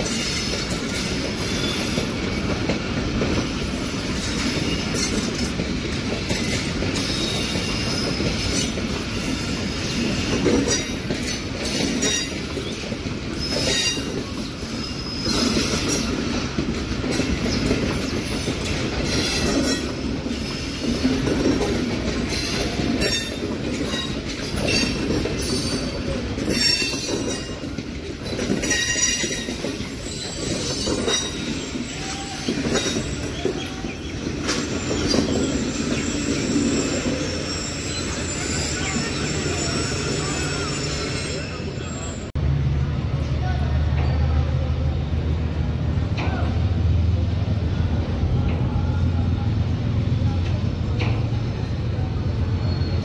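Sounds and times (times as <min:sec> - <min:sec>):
high wheel squeals: 0:00.0 - 0:02.7, 0:03.3 - 0:05.6, 0:06.4 - 0:16.1, 0:21.6 - 0:27.7, 0:28.5 - 0:42.3, 0:52.4 - 0:53.0
train wheels rumbling on track: 0:00.0 - 0:53.0.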